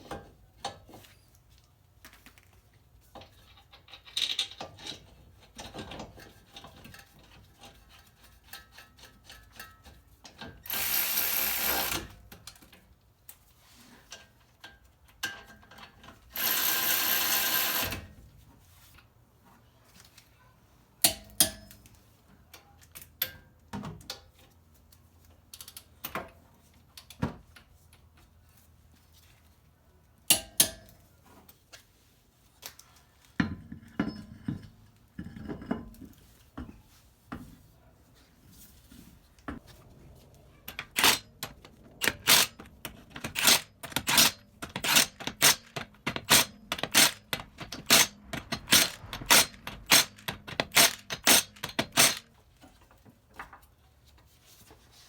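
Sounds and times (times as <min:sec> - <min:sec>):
loud metallic clicks: 0:40.7 - 0:52.2
metal tools clinking and knocking: 0:40.7 - 0:52.3.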